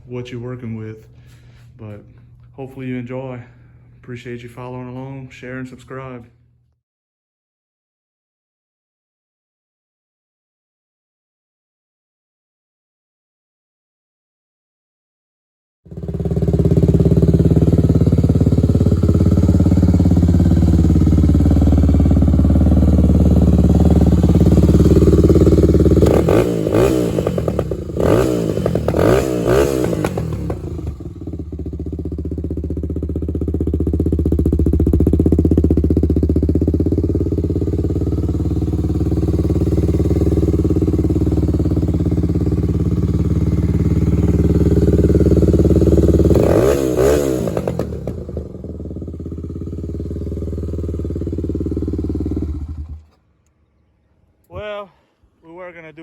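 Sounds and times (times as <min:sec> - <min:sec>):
engine idling and revving: 0:15.9 - 0:53.2.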